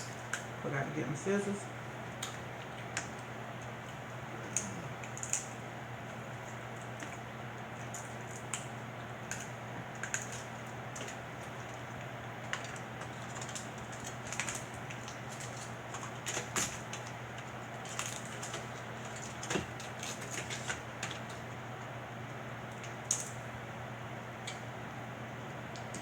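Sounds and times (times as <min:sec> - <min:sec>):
crab shells cracking: 0:00.0 - 0:00.6, 0:02.0 - 0:21.9, 0:22.6 - 0:23.5
steady low hum: 0:00.0 - 0:26.0.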